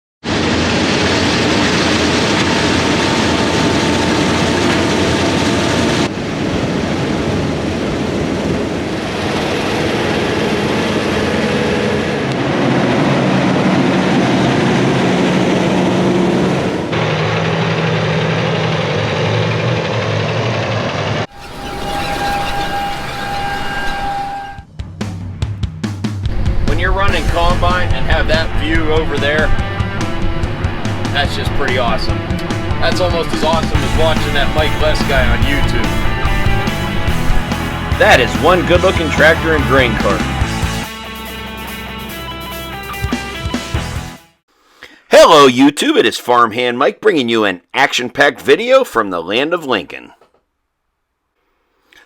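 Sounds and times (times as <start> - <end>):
heavy farm machinery engines: 0.3 - 24.6, 26.3 - 40.9.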